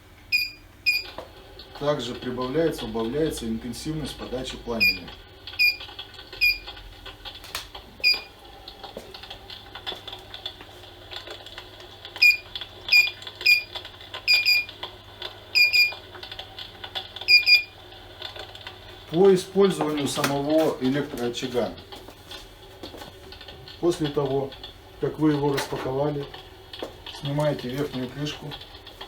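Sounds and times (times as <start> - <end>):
crackling clicks: 4.8 - 29.0
high electronic beeps: 17.3 - 17.7.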